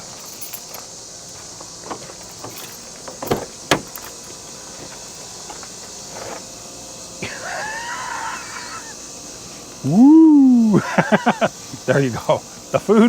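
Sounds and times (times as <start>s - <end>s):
steady high hiss: 0.0s - 13.0s
sharp knocks and clicks: 3.1s - 4.0s.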